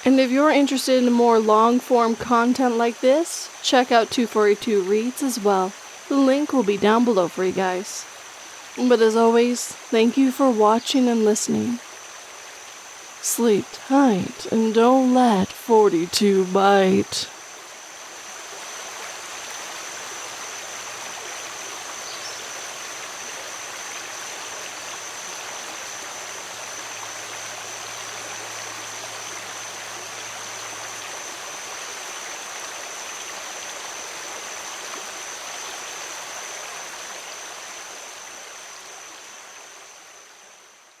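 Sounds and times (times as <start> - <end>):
river water flowing: 0.0 - 41.0
thin steady high tone: 13.2 - 17.4.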